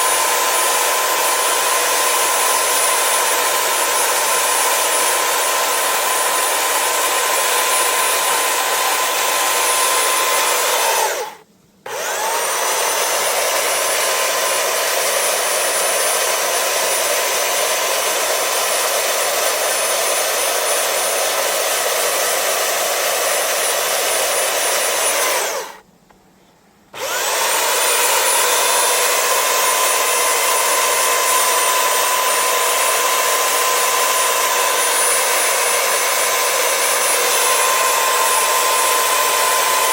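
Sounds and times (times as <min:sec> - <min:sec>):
power tool motor whining: 0:00.0 - 0:25.8, 0:27.0 - 0:39.9.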